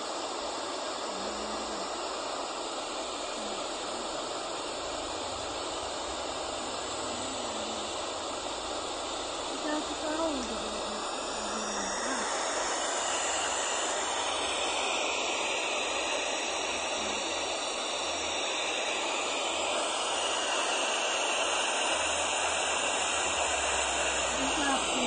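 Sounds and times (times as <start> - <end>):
steady white noise hiss: 0.0 - 25.0.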